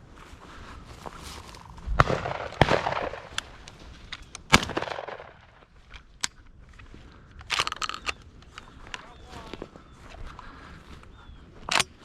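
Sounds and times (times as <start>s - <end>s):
shotgun shot: 2.0s - 3.4s, 4.5s - 5.4s.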